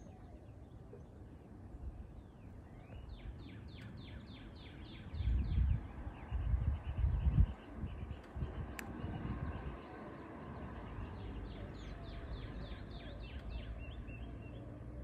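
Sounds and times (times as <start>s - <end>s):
low rumble on microphone: 5.1s - 14.5s.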